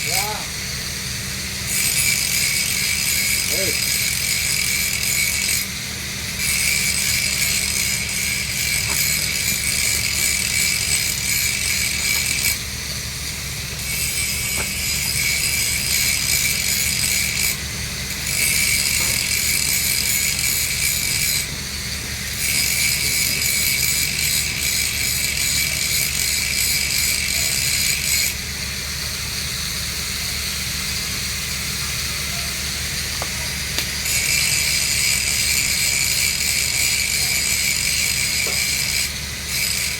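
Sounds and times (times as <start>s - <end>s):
steady low hum: 0.0s - 25.3s
welding arc sizzling: 0.0s - 39.9s.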